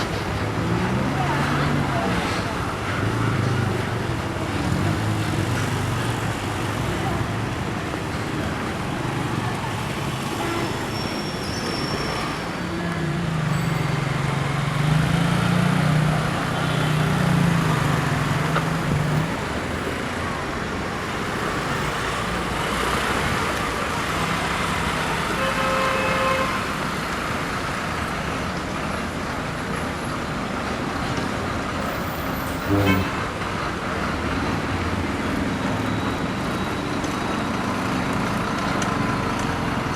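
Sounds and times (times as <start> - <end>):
road traffic noise: 0.0 - 39.9
heavy vehicle engine drone: 28.8 - 36.0
short horn toots: 32.4 - 33.3.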